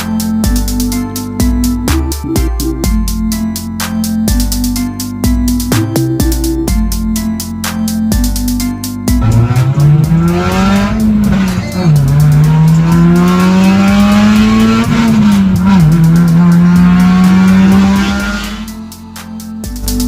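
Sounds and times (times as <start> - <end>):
car engine accelerating hard: 9.2 - 18.8.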